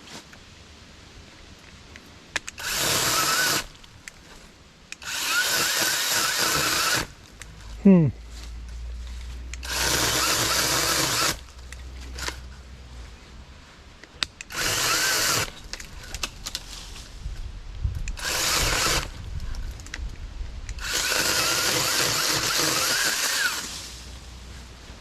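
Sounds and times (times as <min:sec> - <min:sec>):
mini chainsaw cutting: 0:02.5 - 0:03.8, 0:05.0 - 0:07.2, 0:09.5 - 0:12.5, 0:14.3 - 0:16.3, 0:18.1 - 0:19.2, 0:20.7 - 0:24.0.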